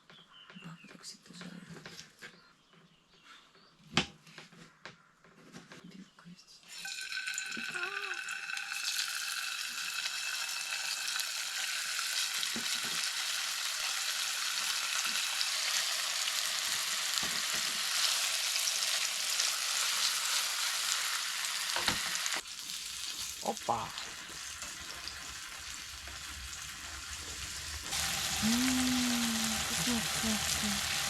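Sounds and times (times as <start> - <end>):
food sizzling in frying pan: 6.8 - 31.0.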